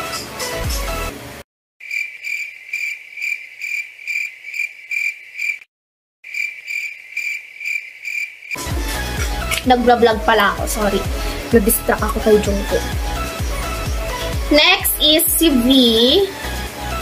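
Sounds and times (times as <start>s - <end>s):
cricket chirping: 1.8s - 5.6s, 6.2s - 8.6s.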